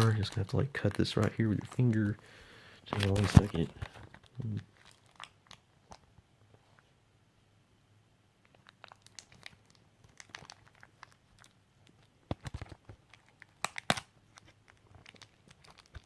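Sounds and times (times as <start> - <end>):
plastic shrink-wrap crinkling: 0.0 - 2.2, 2.8 - 6.0, 8.4 - 16.0
plastic film snapping: 2.9 - 5.6, 12.3 - 16.0.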